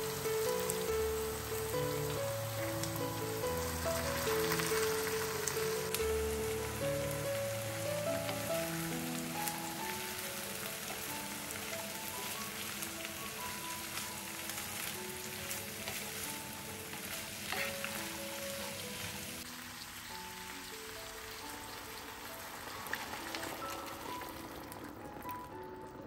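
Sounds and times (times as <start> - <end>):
vegetables sizzling in a pan: 0.0 - 25.6
soft background music: 0.0 - 26.0
wooden spoon scraping and clicking: 16.9 - 18.1.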